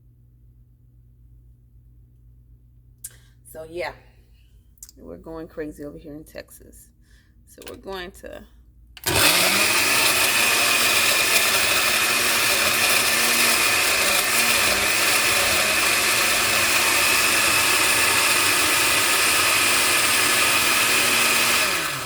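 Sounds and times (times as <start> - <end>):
blender running: 9.0 - 22.0.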